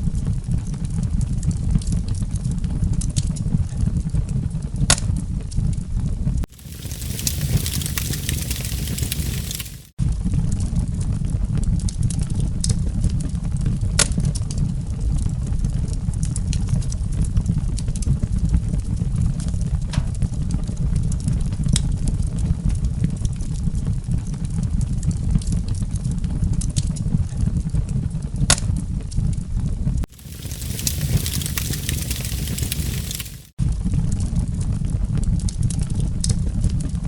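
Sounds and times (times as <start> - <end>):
campfire crackling and popping: 6.5 - 10.0, 30.1 - 33.6.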